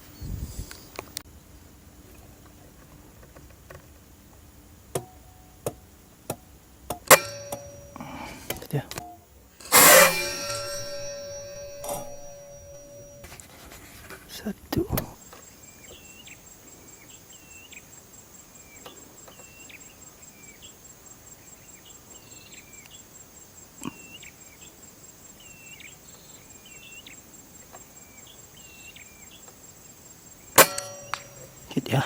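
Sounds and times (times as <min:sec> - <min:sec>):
high-pitched insect trill: 0:15.4 - 0:32.0.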